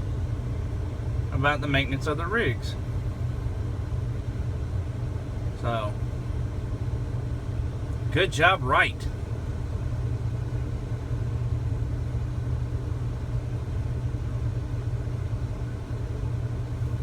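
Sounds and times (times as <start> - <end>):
truck diesel engine idling: 0.0 - 11.0.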